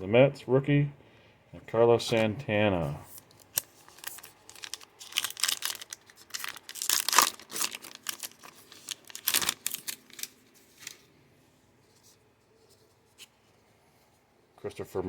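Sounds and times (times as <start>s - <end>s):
wrapper tearing and crinkling: 3.1s - 11.1s.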